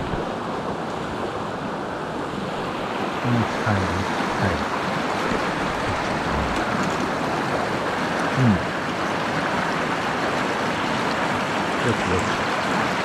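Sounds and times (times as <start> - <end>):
stream water rushing over rocks: 0.0 - 13.0
low vocal sound: 3.3 - 4.7, 5.3 - 7.2, 8.3 - 8.8, 11.8 - 12.5.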